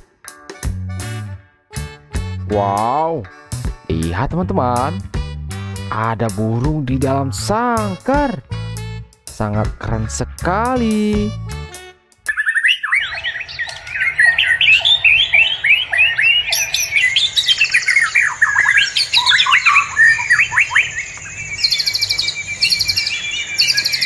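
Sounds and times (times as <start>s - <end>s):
birds chirping and squawking: 12.2s - 24.0s
rapid bird trill: 12.3s - 24.0s.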